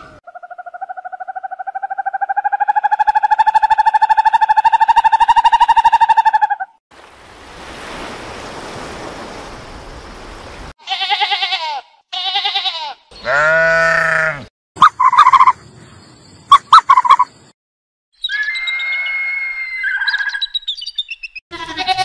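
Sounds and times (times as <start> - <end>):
sheep bleating: 10.8 - 14.5, 21.5 - 22.0.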